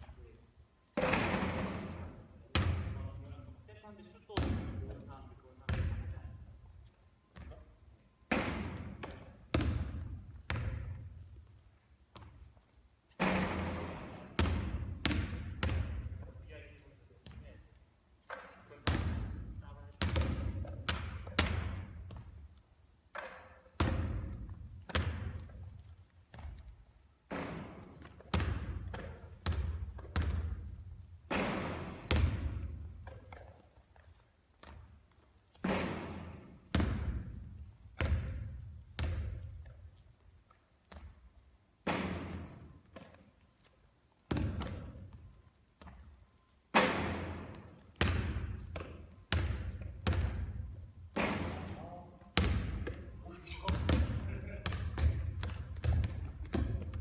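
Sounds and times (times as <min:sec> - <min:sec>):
basketball thudding with echo: 0:01.0 - 0:03.2, 0:04.3 - 0:05.0, 0:05.6 - 0:06.2, 0:08.3 - 0:11.3, 0:13.2 - 0:16.4, 0:18.3 - 0:22.4, 0:23.1 - 0:26.7, 0:27.3 - 0:33.5, 0:35.5 - 0:39.7, 0:41.8 - 0:43.2, 0:44.3 - 0:45.2, 0:46.7 - 0:57.0.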